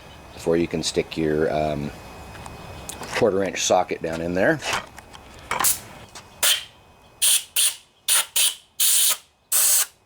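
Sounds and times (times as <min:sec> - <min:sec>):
compressed air blow gun hiss: 0:05.6 - 0:10.0.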